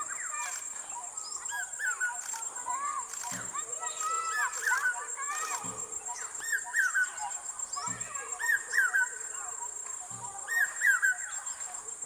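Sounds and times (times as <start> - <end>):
bird whistling song: 10.5 - 11.4.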